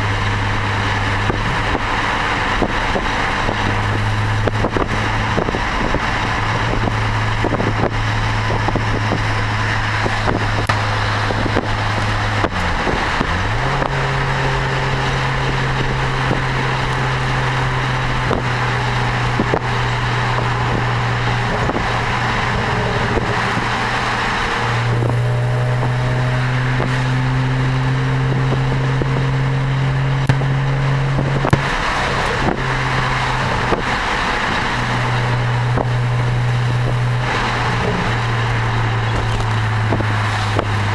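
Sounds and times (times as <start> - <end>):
car exhaust drone: 0.0 - 40.9
tyre and wind noise: 0.0 - 40.9.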